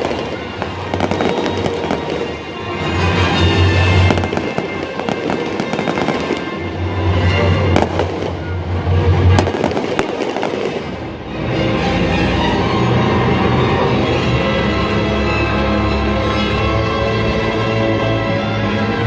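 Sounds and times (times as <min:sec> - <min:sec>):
fireworks banging and crackling: 0:00.0 - 0:11.5
music from stadium speakers: 0:00.0 - 0:19.0.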